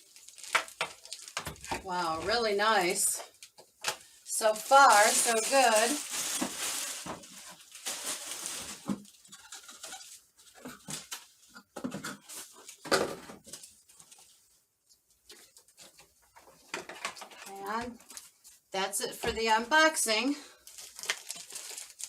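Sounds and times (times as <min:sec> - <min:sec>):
packaging rustling: 0:00.0 - 0:11.5, 0:20.5 - 0:22.0.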